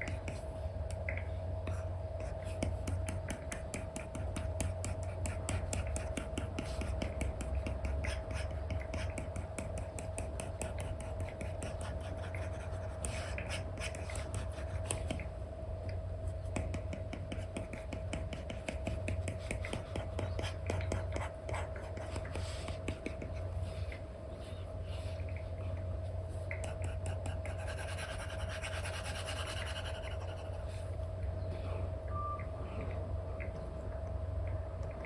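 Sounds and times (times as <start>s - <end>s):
stylus scratching and tapping: 0.0s - 15.3s, 16.3s - 24.0s
faint hum: 0.0s - 35.0s.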